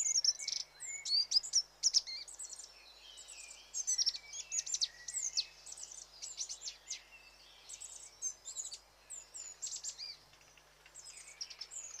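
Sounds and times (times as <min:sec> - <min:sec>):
faint steady hiss: 0:00.0 - 0:12.0
small songbird chirping: 0:00.0 - 0:12.0.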